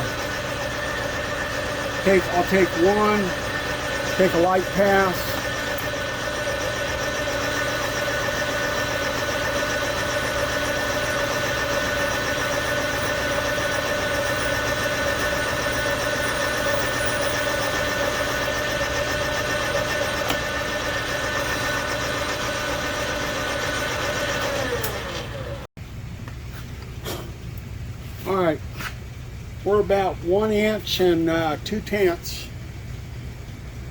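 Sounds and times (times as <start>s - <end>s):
metal lathe whining: 0.0s - 25.7s.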